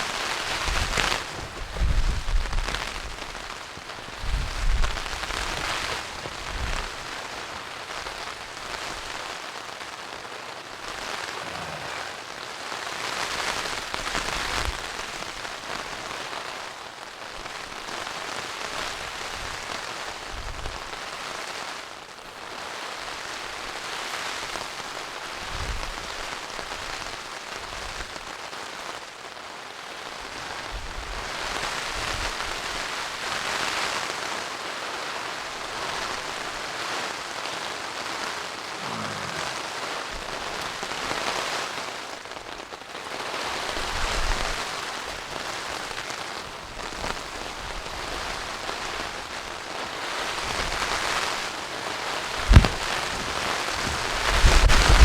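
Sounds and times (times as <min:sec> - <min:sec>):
heavy rain falling: 0:00.0 - 0:55.0
short low thuds: 0:52.4 - 0:55.0.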